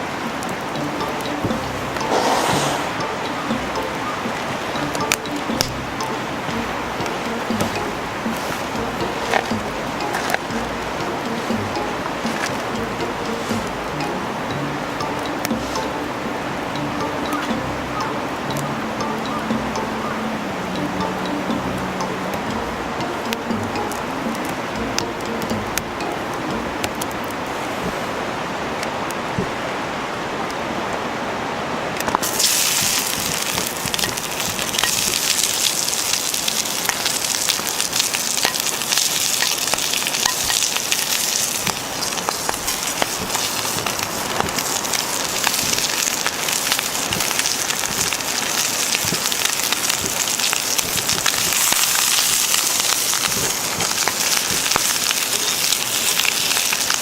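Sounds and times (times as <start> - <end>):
food sizzling in a pan: 0.0 - 16.0, 32.2 - 57.0
burning wood crackles: 32.0 - 57.0.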